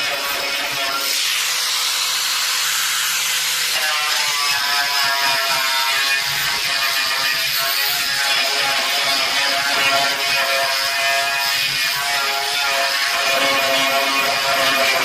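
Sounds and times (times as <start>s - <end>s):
power tool motor whine: 0.0s - 15.0s.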